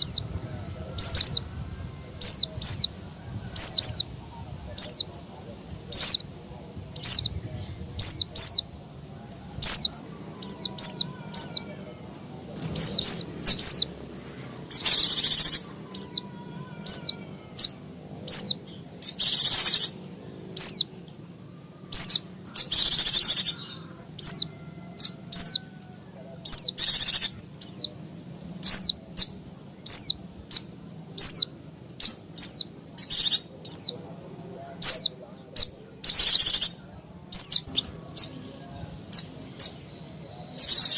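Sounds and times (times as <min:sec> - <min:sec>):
bird buzzy scolding call: 0:09.6 - 0:11.8, 0:12.6 - 0:14.0, 0:14.6 - 0:20.9, 0:21.8 - 0:25.7, 0:26.4 - 0:27.9
bird chirping sharply: 0:09.6 - 0:11.8, 0:12.6 - 0:14.0, 0:14.7 - 0:25.7, 0:26.4 - 0:28.0, 0:28.6 - 0:34.0, 0:34.8 - 0:40.9.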